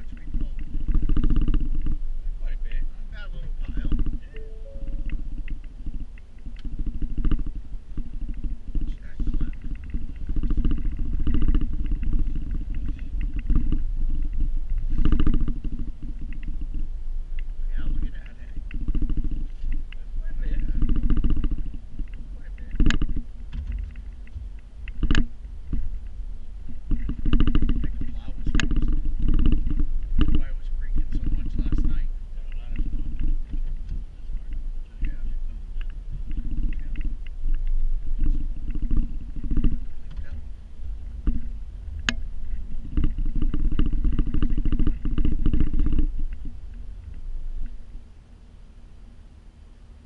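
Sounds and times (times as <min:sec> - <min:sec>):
rapid rattling: 0:00.0 - 0:02.0, 0:05.1 - 0:16.9, 0:17.7 - 0:48.1
vehicle engine running: 0:00.0 - 0:49.1
low machine rumble: 0:00.0 - 0:50.0
fast clattering rattle: 0:06.6 - 0:16.8, 0:42.4 - 0:46.7.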